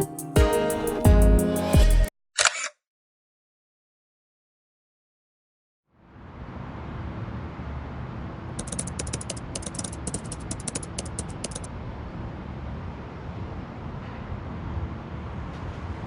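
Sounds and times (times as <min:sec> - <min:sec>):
rapid light clicks: 0:08.6 - 0:11.7.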